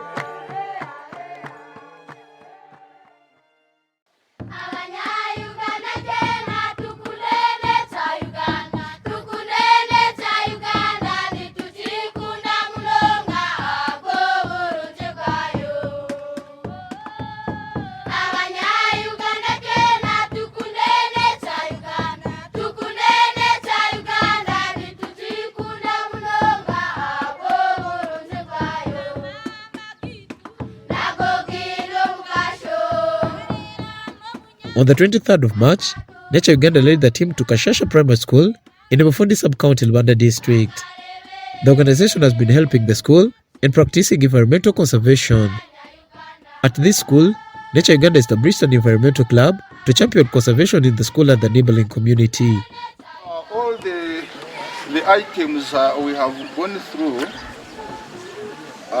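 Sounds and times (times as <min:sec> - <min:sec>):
group singing: 0:00.0 - 0:03.2, 0:04.4 - 0:29.8, 0:30.8 - 0:38.0, 0:40.4 - 0:43.3, 0:44.4 - 0:59.0
hand claps: 0:00.0 - 0:03.2, 0:53.7 - 0:58.0.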